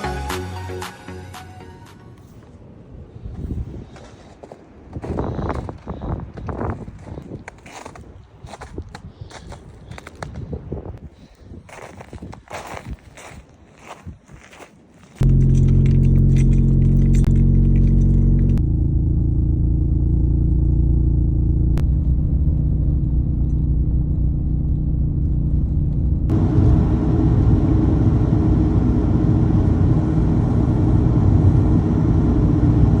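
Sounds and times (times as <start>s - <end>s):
engine humming: 15.2s - 33.0s.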